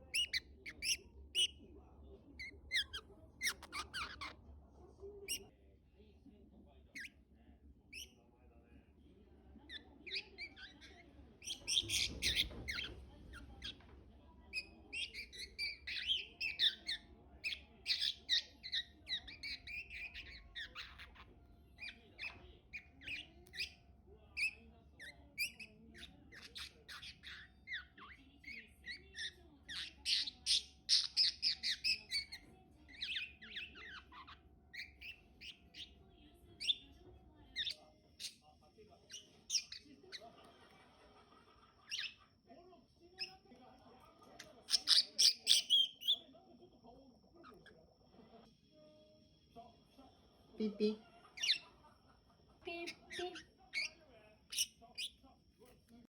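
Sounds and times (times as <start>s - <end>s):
budgerigar warbling and chattering: 0.0s - 1.6s, 2.4s - 4.4s, 5.2s - 5.5s, 9.7s - 13.8s, 14.5s - 36.0s, 36.6s - 36.9s, 37.5s - 38.4s, 39.1s - 40.4s, 41.8s - 42.2s, 44.4s - 46.2s, 51.2s - 51.8s, 52.7s - 55.2s.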